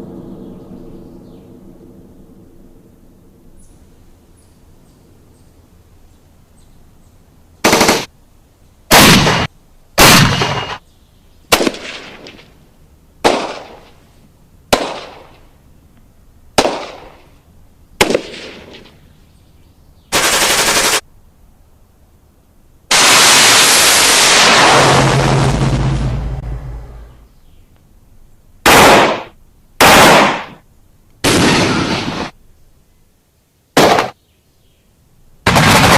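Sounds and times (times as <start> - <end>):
automatic gunfire bursts: 7.6 - 8.1, 20.1 - 21.0, 35.5 - 35.9
single gunshots with echo: 8.9 - 10.8, 11.5 - 12.4, 13.2 - 13.8, 14.7 - 15.4, 16.6 - 17.2, 18.0 - 18.8, 28.7 - 30.6, 33.8 - 34.2
loud blast of noise: 22.9 - 27.3.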